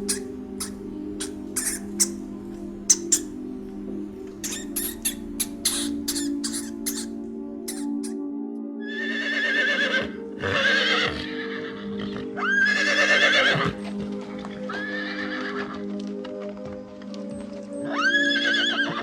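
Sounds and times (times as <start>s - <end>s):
background music: 0.0s - 19.0s
horse whinnying: 8.8s - 14.0s, 14.7s - 15.8s, 17.9s - 19.0s.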